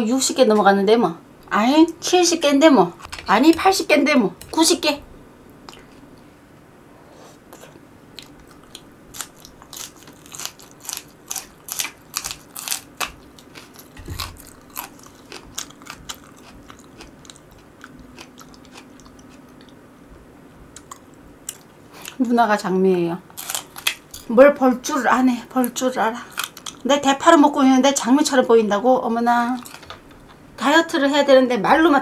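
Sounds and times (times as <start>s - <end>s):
crisp crunching and chewing: 8.2s - 19.8s, 23.3s - 24.3s, 26.2s - 26.9s, 29.6s - 30.4s.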